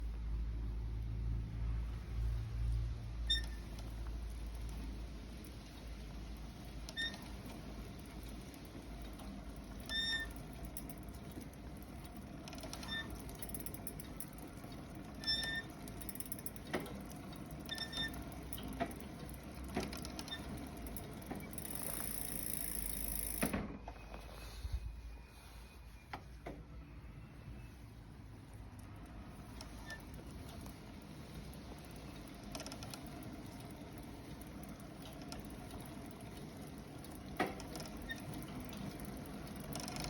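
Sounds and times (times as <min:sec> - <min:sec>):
low rumble of riding: 0:00.0 - 0:40.0
bicycle pedals squeaking: 0:03.2 - 0:04.6, 0:06.8 - 0:23.4, 0:29.5 - 0:36.7, 0:37.6 - 0:40.0.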